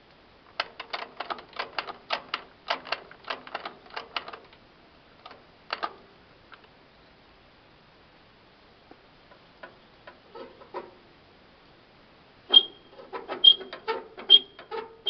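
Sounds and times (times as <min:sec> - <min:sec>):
clicks of tractor controls: 0:00.6 - 0:04.6, 0:05.2 - 0:06.7.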